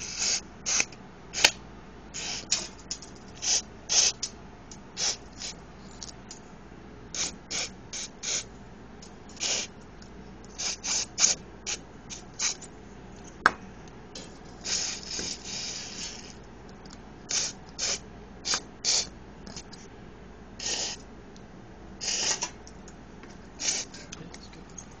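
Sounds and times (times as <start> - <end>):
short hissing sprays: 23.6 - 23.9.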